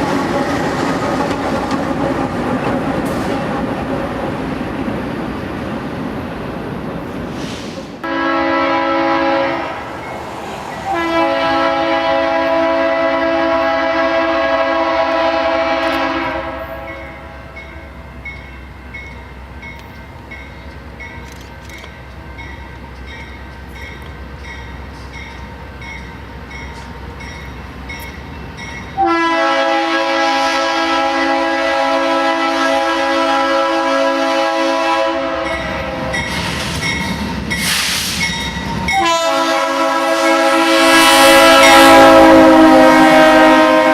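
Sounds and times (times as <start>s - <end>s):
train wheel clicks: 0.0s - 4.4s, 18.3s - 28.9s
train rumbling past: 0.0s - 43.9s
locomotive air horn: 8.0s - 9.8s, 10.9s - 17.6s, 29.0s - 36.4s, 38.9s - 43.9s.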